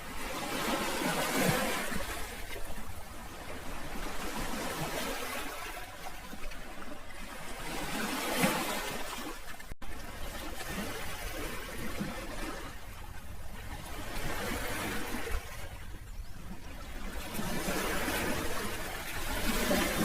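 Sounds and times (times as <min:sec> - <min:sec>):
sea waves washing in: 0:00.0 - 0:20.0.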